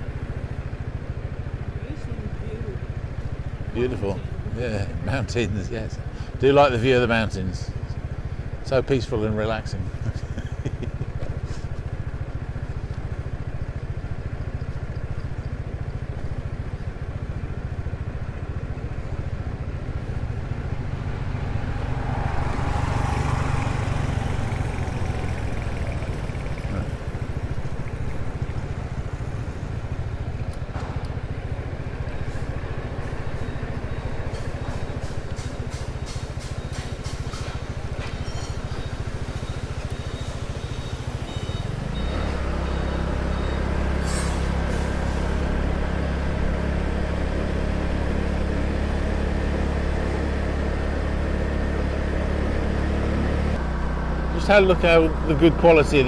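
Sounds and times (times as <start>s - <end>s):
scooter engine hum: 0.0s - 56.0s.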